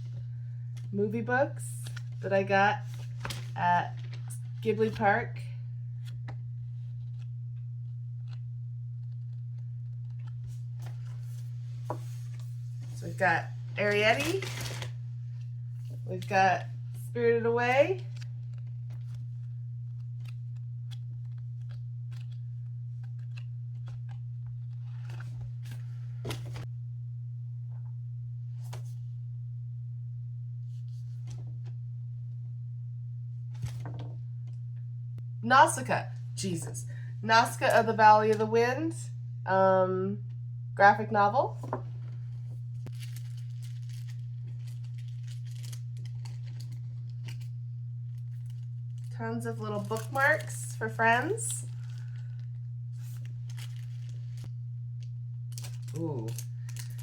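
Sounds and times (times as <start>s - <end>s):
steady low hum: 0.0s - 57.0s
books rustling: 2.8s - 5.0s, 13.8s - 15.0s, 23.0s - 26.7s, 33.6s - 34.1s, 42.9s - 47.5s, 48.2s - 52.4s, 53.0s - 54.5s.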